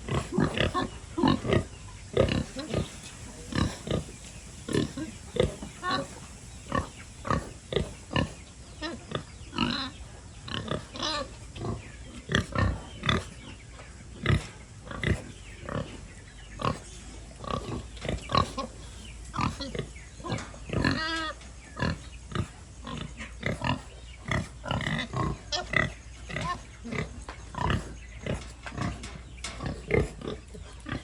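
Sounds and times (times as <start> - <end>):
pigs grunting: 0.0 - 31.0
pig squealing: 2.2 - 8.3.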